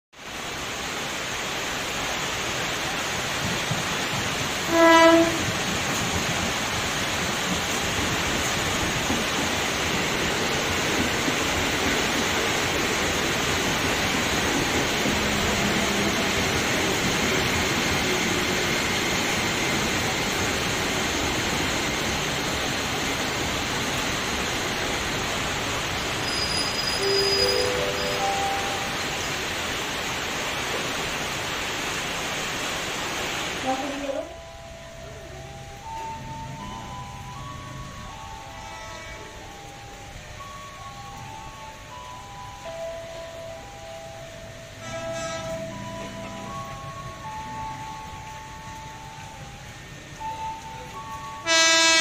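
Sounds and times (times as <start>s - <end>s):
train wheels rushing on rails: 0.2s - 52.0s
train horn blast: 4.6s - 5.7s, 38.6s - 39.4s, 44.8s - 45.8s, 51.4s - 52.0s.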